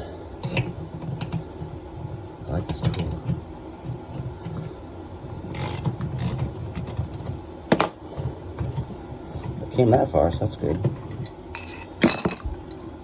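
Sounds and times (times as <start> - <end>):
ratchet wrench clicking: 5.5 - 6.9.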